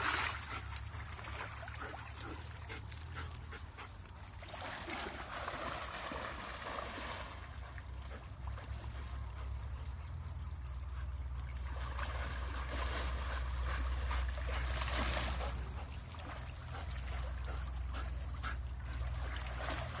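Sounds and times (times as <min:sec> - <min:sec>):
river water splashing: 0:00.0 - 0:20.0
steady low rumble: 0:07.4 - 0:20.0.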